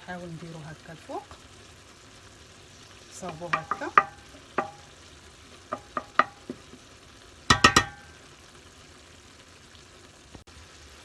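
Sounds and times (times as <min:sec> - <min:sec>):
faint sizzle: 0:00.0 - 0:11.0
utensil clinking against pan: 0:03.3 - 0:04.9, 0:05.7 - 0:06.8, 0:07.5 - 0:08.2.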